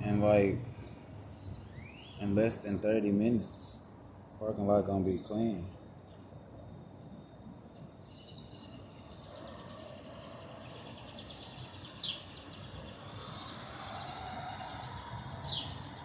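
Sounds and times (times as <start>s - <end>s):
low background hum: 0.0s - 16.0s
bird rattling chatter: 8.8s - 12.6s
bird calls sweeping downward: 9.6s - 16.0s.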